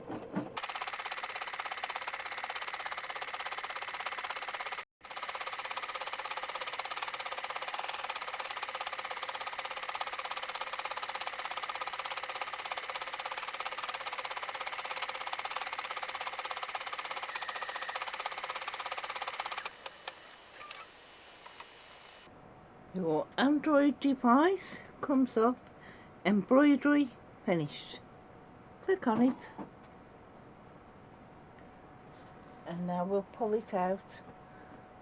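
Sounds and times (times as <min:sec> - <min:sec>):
embroidery machine stitching: 0:00.6 - 0:22.3.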